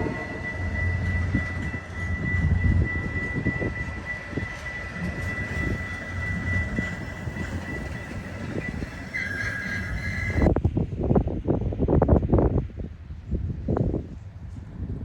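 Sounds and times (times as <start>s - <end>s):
wheel squeal: 0.0s - 10.5s
train rumbling past: 0.0s - 15.0s
wind buffeting microphone: 0.0s - 15.0s.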